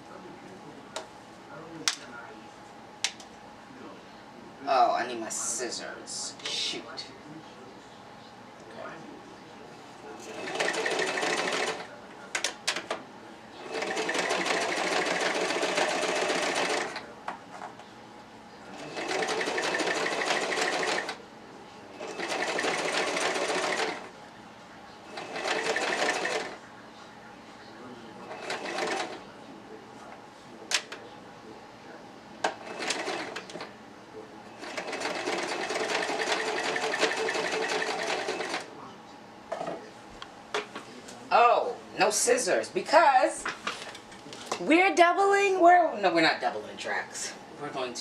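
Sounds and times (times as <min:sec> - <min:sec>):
sewing machine stitching: 0:10.3 - 0:11.9, 0:13.6 - 0:17.0, 0:18.8 - 0:21.2, 0:22.0 - 0:24.1, 0:25.1 - 0:26.6, 0:28.3 - 0:29.2, 0:32.6 - 0:33.6, 0:34.6 - 0:38.7.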